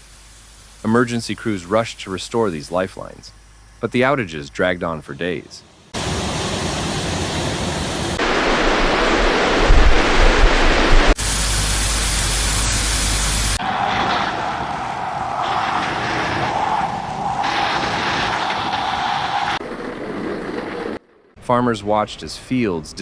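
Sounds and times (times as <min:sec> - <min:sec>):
deep rumble: 0:05.9 - 0:11.4
floodwater rushing: 0:06.0 - 0:21.0
heavy rain: 0:06.0 - 0:21.0.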